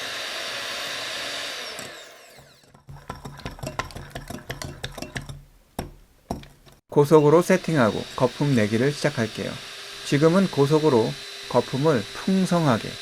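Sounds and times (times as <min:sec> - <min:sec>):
hand mixer motor whining: 0:00.0 - 0:02.9, 0:07.1 - 0:13.0.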